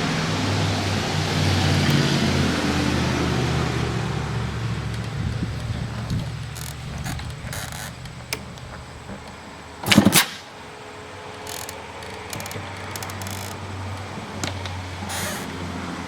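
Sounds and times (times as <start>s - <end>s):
two-stroke engine idling: 0.0s - 16.0s.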